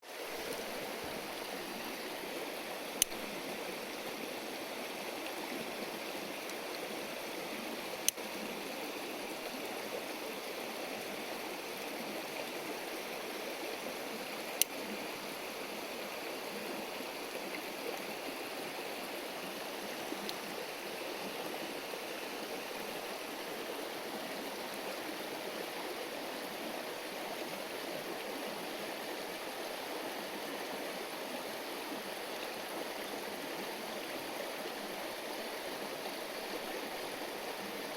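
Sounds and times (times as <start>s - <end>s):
river stream rushing: 0.0s - 37.9s
sharp clicks: 3.0s - 3.2s.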